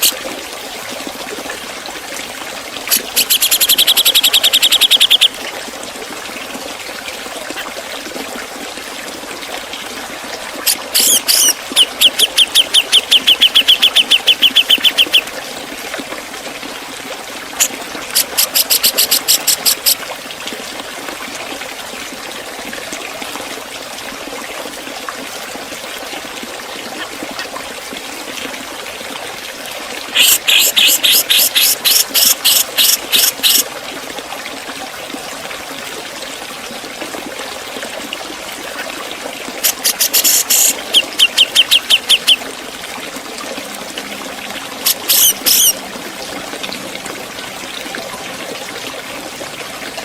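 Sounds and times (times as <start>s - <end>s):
bird calling sharp pik notes: 2.9s - 5.3s, 10.7s - 15.3s, 17.6s - 20.0s, 30.2s - 33.6s, 39.6s - 42.4s, 44.8s - 45.8s.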